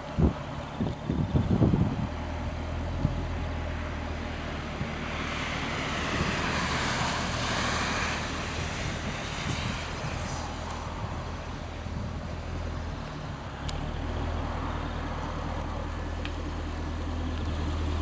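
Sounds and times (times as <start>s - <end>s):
car engine idling: 0.0s - 18.0s
broad rushing sound: 4.7s - 13.3s.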